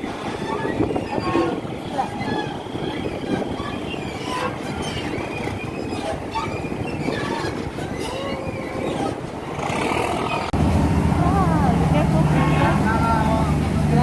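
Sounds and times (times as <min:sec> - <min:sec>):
thin high squeals: 0:00.0 - 0:09.3
vehicle rumbling in motion: 0:00.0 - 0:14.0.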